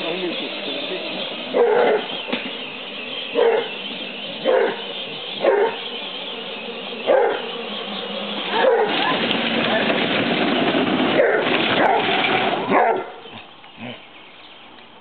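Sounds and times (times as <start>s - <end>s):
steady background noise: 0.0s - 15.0s
hound dog barking: 1.5s - 2.2s, 3.3s - 3.8s, 4.4s - 5.9s, 7.0s - 7.5s, 8.5s - 9.1s, 11.2s - 12.1s, 12.7s - 13.3s.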